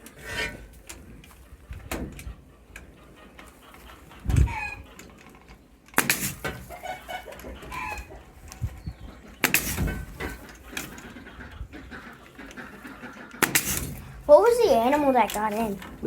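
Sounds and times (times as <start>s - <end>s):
chickens clucking: 0.0s - 16.0s
pneumatic staple gun firing: 6.0s - 6.5s, 13.4s - 14.0s.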